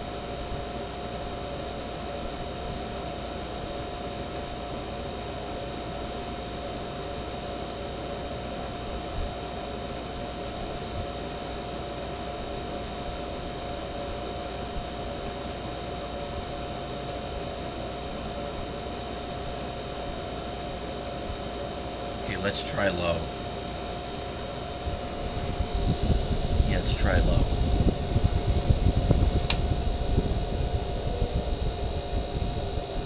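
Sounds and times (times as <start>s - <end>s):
air conditioner humming: 18.6s - 33.0s.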